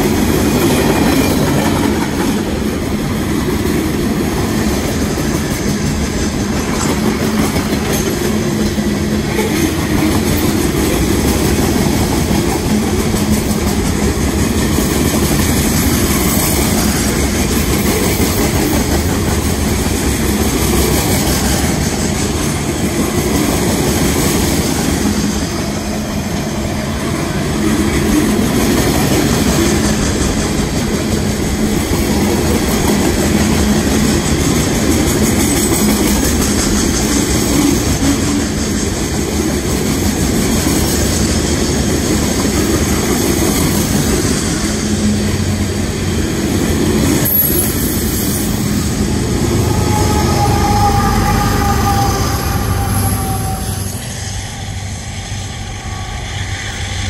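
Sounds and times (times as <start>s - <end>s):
freight train wheels on rails: 0.0s - 57.0s.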